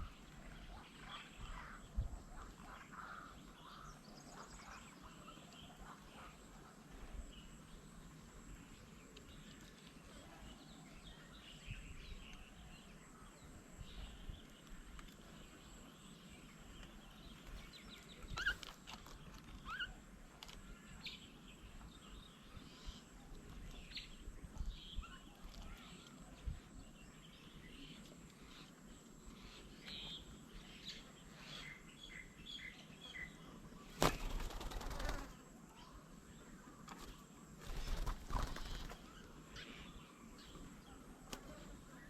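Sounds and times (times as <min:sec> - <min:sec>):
bird chirps and calls: 0:16.8 - 0:18.7, 0:19.4 - 0:20.0.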